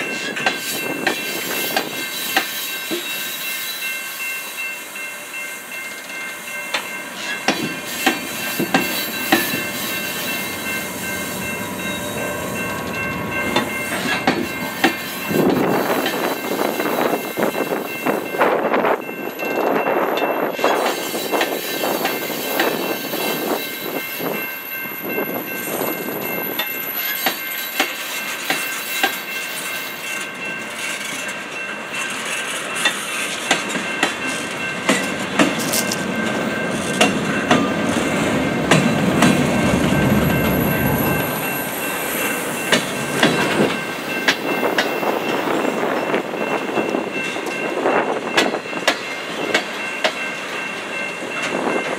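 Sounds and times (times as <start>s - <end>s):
wheels clicking over rail joint: 0.0s - 3.2s, 6.0s - 10.0s, 30.8s - 37.7s
high ringing tone: 0.0s - 30.9s
train rumble: 4.2s - 51.9s.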